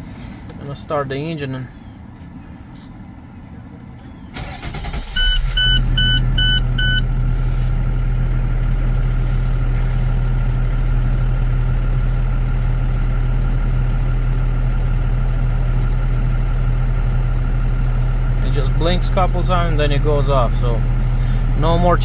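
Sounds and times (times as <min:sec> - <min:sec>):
diesel truck engine idling: 0:00.0 - 0:22.0
short electronic beeps: 0:04.9 - 0:07.1.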